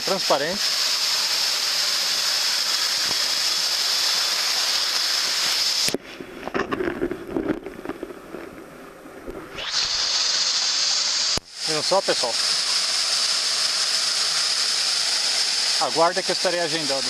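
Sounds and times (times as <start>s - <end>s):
waterfall rushing: 0.0s - 6.0s, 9.6s - 17.0s.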